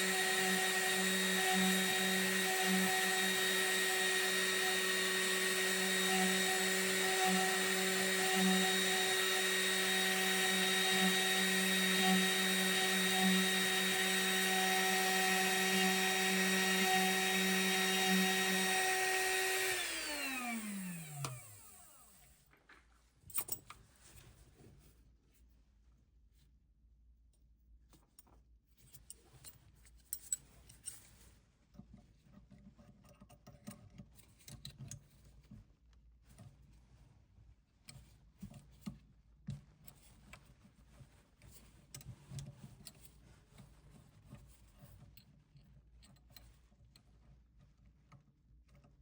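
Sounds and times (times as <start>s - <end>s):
mill spindle whining: 0.0s - 22.0s.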